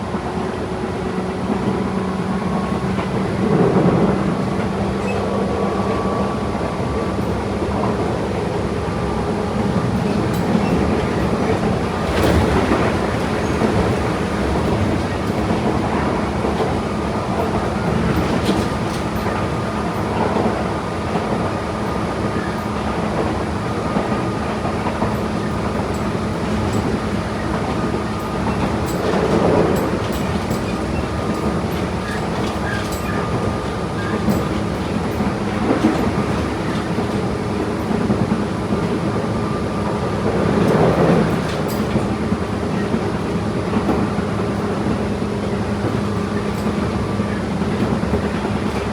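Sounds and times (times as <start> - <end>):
electric train running: 0.2 - 48.9
wheels clicking over rail joints: 9.5 - 23.4, 24.0 - 39.2, 39.8 - 48.9.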